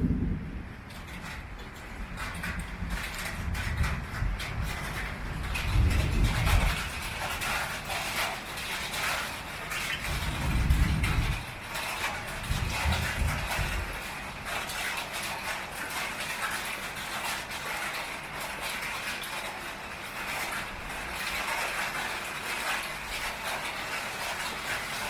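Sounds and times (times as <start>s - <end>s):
low rumble: 0.0s - 1.0s
heavy rain on a tin roof: 0.0s - 25.0s.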